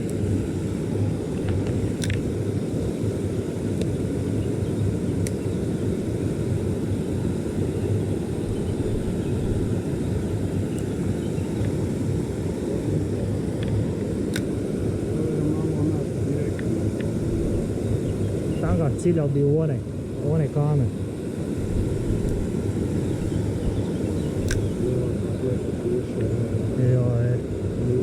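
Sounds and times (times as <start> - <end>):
stream water flowing: 0.0 - 27.0
faint sharp clicks: 1.4 - 2.2, 3.8 - 4.0, 5.2 - 5.5, 10.7 - 11.0, 13.6 - 14.6, 24.4 - 24.8.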